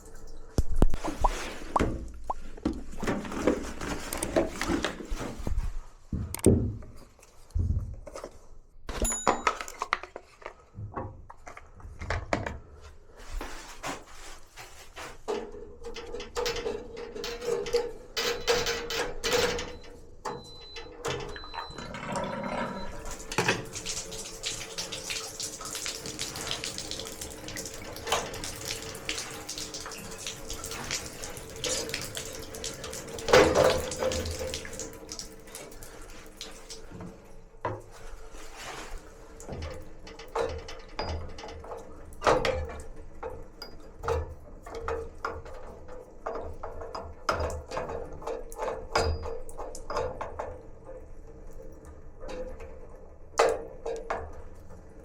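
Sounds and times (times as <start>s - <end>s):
water heater humming: 0.0s - 5.2s, 12.4s - 52.2s
handling clicks and knocks: 8.9s - 12.6s
water running from a tap: 20.4s - 37.3s.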